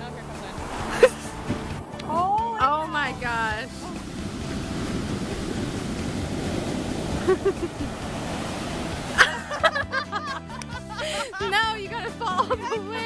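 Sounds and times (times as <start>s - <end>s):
wind on microphone: 0.0s - 9.2s
waves breaking on beach: 0.0s - 13.0s.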